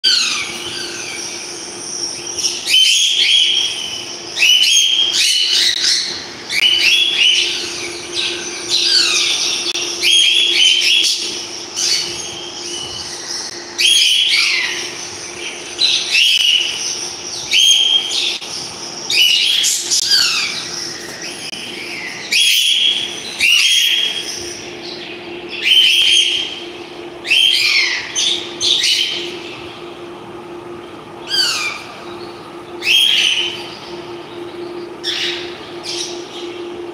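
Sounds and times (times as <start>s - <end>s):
parrots chirping and squawking: 0.0s - 25.0s, 27.2s - 29.4s, 31.3s - 32.0s
steady low hum: 0.0s - 36.9s.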